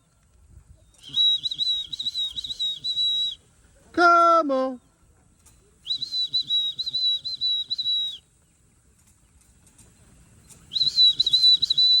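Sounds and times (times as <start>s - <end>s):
person whistling a warbling call: 1.0s - 3.4s, 5.9s - 8.2s, 10.7s - 12.0s.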